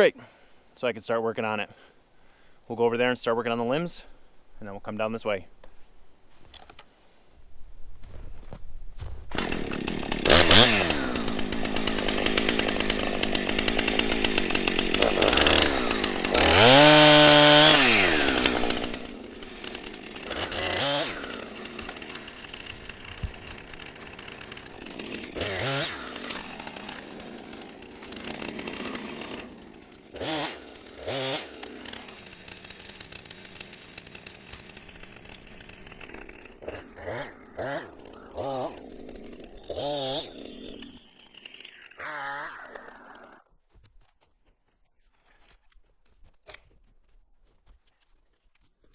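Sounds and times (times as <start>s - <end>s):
chainsaw at high revs: 9.3s - 43.5s
chainsaw idling with throttle blips: 9.3s - 43.7s.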